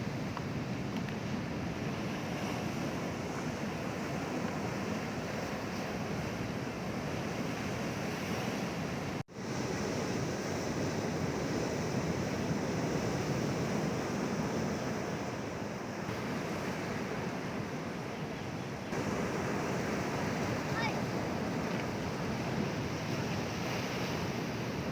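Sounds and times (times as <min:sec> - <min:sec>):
sea waves washing onto shore: 0:00.0 - 0:24.9.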